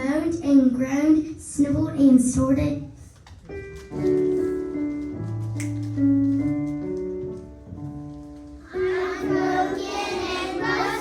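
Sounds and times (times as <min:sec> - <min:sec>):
slow piano chords: 0:02.8 - 0:11.0.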